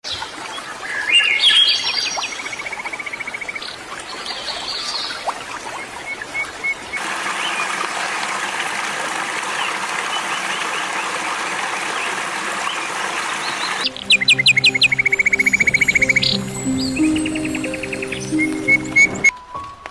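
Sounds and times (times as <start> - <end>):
birds chirping and trilling: 9.6 - 19.3
dense chorus of chirps: 13.4 - 19.3.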